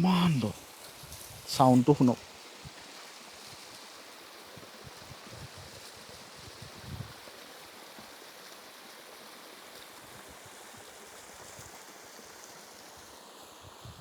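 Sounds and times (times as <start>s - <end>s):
waterfall rushing: 0.0s - 0.8s.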